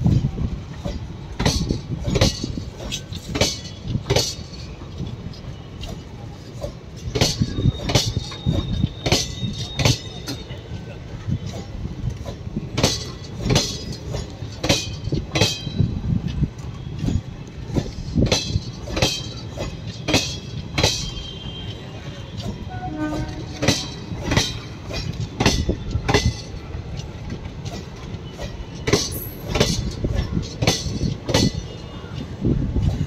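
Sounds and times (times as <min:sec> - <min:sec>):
train wheels clicking over rail joints: 0:00.0 - 0:33.0.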